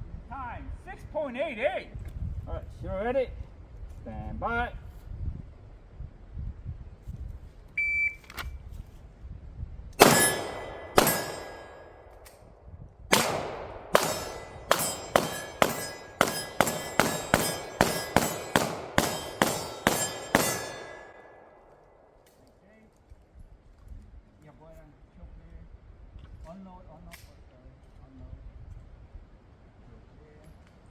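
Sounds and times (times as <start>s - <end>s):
pistol shots: 10.0s - 12.3s, 13.1s - 22.2s
metallic ringing of steel targets: 10.0s - 12.4s, 13.1s - 22.1s.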